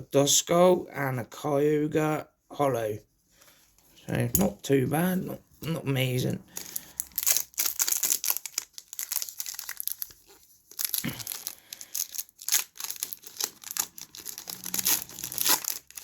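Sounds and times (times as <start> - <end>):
foil wrapper crinkling and tearing: 6.5 - 16.0.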